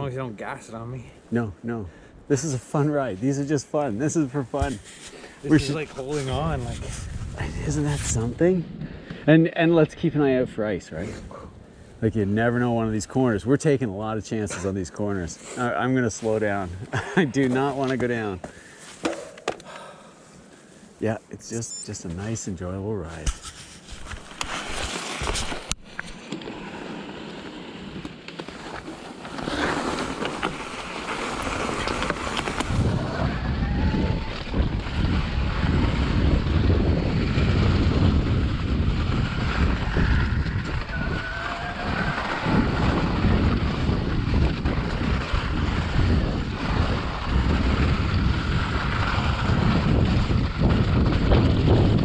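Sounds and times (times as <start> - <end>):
wind buffeting microphone: 4.4 - 13.5, 31.5 - 52.0.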